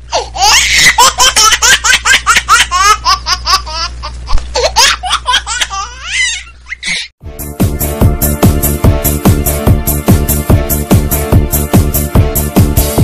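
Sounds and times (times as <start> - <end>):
high-pitched laughter: 0.1 - 7.1
electronic dance music: 7.2 - 13.0.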